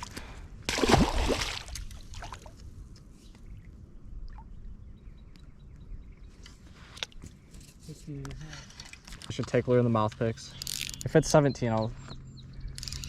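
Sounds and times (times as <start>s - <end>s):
water splash: 0.7s - 2.5s.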